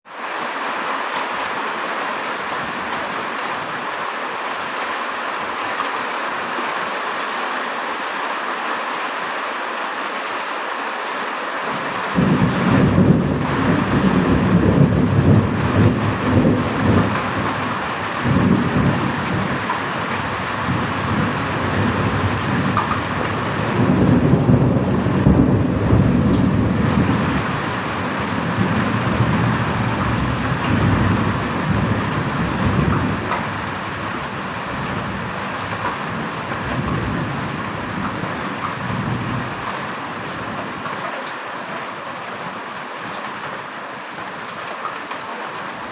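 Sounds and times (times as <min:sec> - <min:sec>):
heavy rain falling: 0:00.0 - 0:45.9
thunder rumbling: 0:12.0 - 0:40.8.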